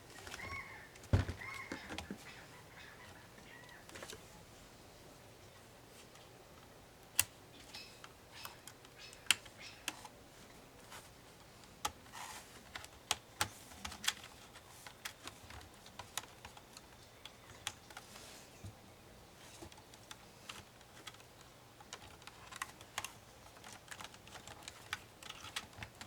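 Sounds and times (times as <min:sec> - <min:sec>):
plastic laptop case clicking: 0:19.6 - 0:26.0.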